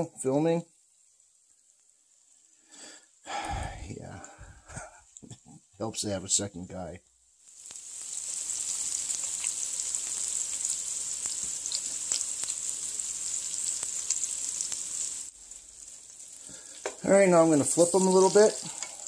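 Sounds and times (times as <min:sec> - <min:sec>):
food frying in a pan: 0:00.0 - 0:03.3, 0:07.3 - 0:19.0.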